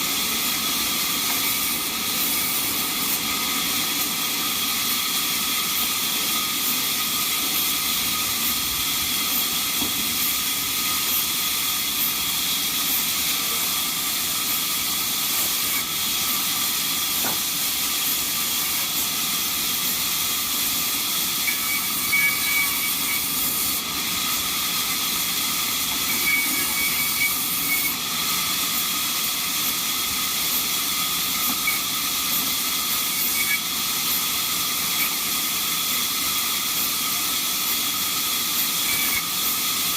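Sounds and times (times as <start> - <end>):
sawmill machine hissing: 0.0 - 39.9.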